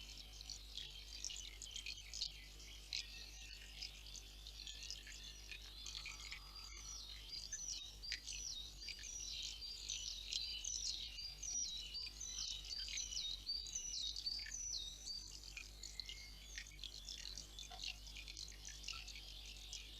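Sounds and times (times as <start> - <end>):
songbirds singing: 0.0 - 19.9.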